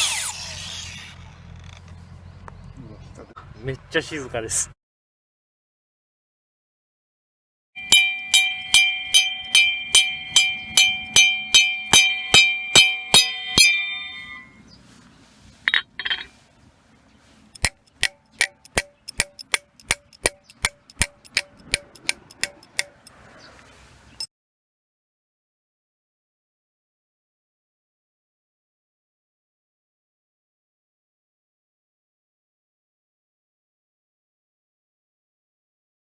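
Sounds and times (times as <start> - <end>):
ringing metallic clinks: 7.8 - 14.6, 17.6 - 23.2.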